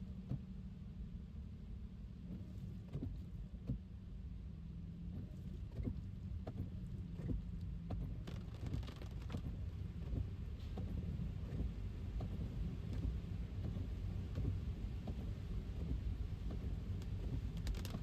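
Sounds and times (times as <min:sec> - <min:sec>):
car road rumble: 0:00.0 - 0:18.0
raindrop taps: 0:05.1 - 0:18.0.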